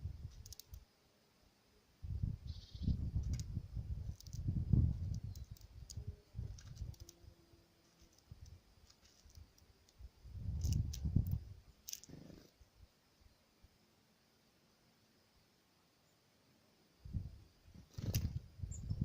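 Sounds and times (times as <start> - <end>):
birds pecking at feeder: 0.3 - 0.8, 4.1 - 7.2, 7.8 - 9.7, 10.5 - 12.6.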